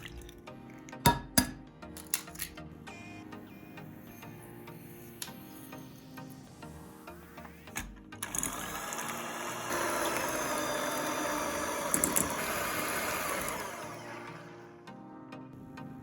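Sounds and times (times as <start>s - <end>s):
electric mixer beating eggs: 7.8s - 14.8s.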